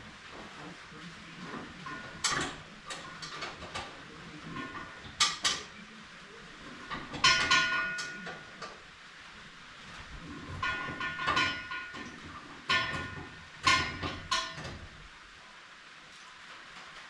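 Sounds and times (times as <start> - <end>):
metal parts clanking: 4.5 - 5.7, 6.8 - 8.7, 10.3 - 14.9.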